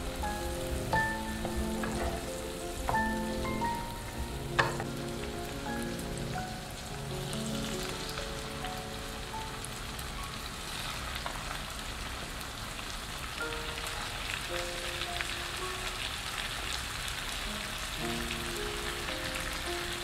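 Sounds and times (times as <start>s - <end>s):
background music: 0.0s - 10.6s, 17.5s - 20.0s
food sizzling in frying pan: 0.0s - 20.0s.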